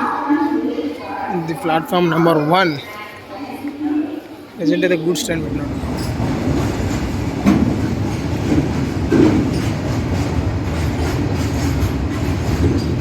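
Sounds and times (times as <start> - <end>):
train wagons clanking: 5.3 - 13.0
train wheels rumbling on rails: 5.3 - 13.0.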